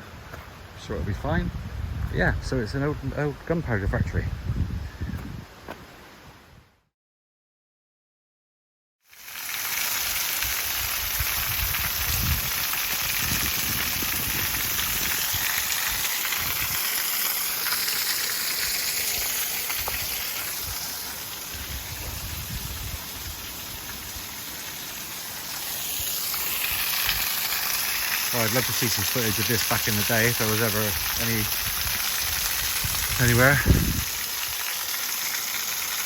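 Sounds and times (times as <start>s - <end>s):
stream water rushing: 12.2s - 36.0s.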